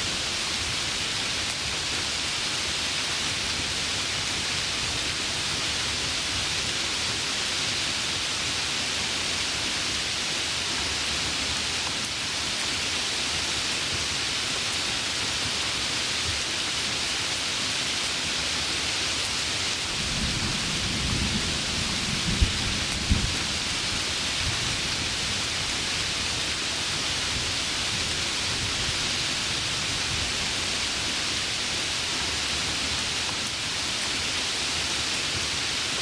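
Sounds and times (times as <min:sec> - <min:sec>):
heavy rain: 0:00.0 - 0:36.0
thunder rumbling and cracking: 0:19.9 - 0:24.9.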